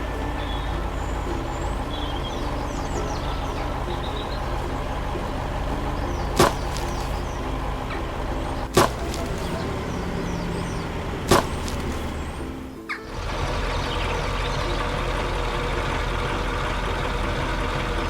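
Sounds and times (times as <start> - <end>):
tractor engine running: 0.0 - 18.0
sharp knocks: 6.4 - 7.2, 8.7 - 9.6, 11.3 - 12.1.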